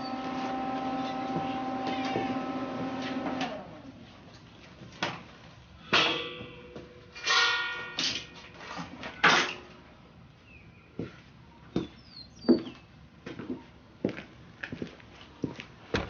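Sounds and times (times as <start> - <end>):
steel pieces clanking: 7.2 - 8.5.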